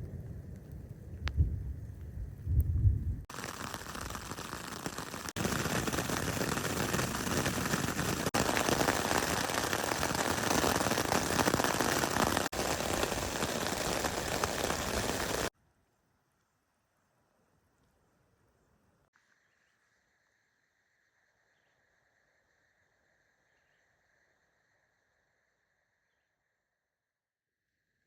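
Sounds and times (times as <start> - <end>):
low rumble of thunder: 0.0 - 3.3
steady rain falling: 3.3 - 15.5.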